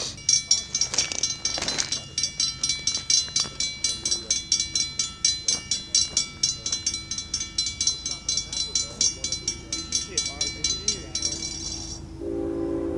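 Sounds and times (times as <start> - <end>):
railroad crossing bell ringing: 0.0 - 12.9.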